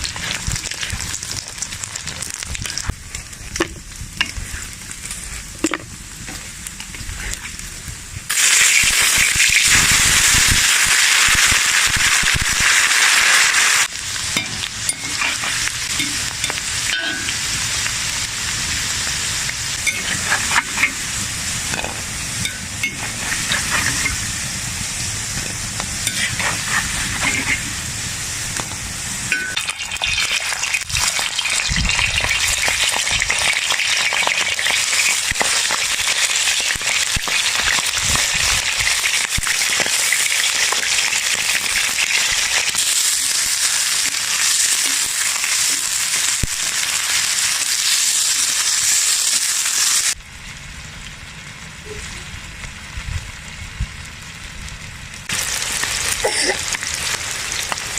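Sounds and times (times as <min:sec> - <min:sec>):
offal sizzling in a pan: 0:00.0 - 0:57.9
stirring scrape and clink: 0:14.4 - 0:17.3, 0:19.8 - 0:21.1, 0:21.7 - 0:24.2, 0:25.5 - 0:27.7.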